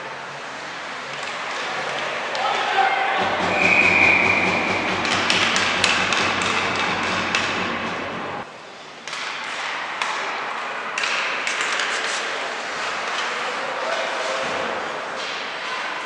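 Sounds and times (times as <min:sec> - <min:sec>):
large hall ambience: 0:00.0 - 0:16.0
sharp taps and knocks: 0:03.2 - 0:08.4.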